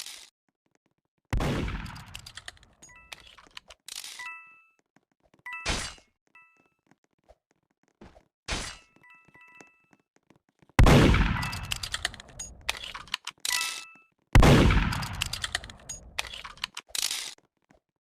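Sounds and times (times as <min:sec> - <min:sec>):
metallic clinks and dings: 0:13.5 - 0:14.1.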